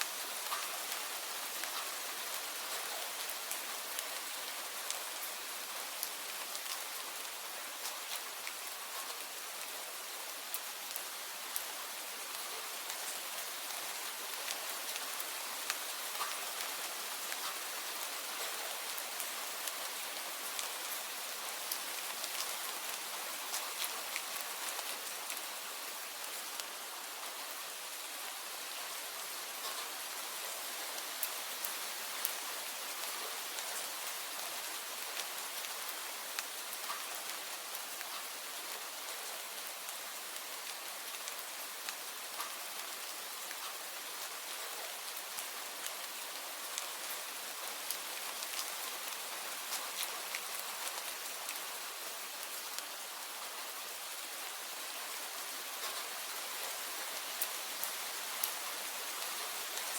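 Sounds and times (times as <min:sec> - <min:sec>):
steady rain hiss: 0:00.0 - 0:59.9
raindrops ticking on a surface: 0:00.1 - 0:59.9.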